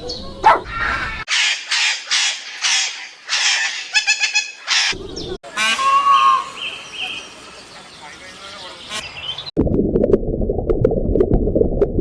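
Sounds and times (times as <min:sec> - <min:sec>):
clear pitched bird call: 0:00.0 - 0:09.5
bird squawking: 0:00.4 - 0:09.4.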